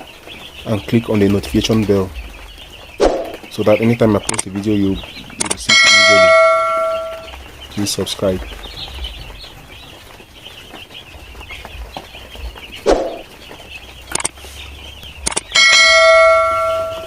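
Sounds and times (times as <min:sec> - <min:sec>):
chicks cheeping: 0:00.0 - 0:17.0
sharp clicks: 0:04.1 - 0:06.2, 0:14.1 - 0:14.4, 0:15.2 - 0:15.8
bell-like chime: 0:05.7 - 0:07.3, 0:15.6 - 0:17.0.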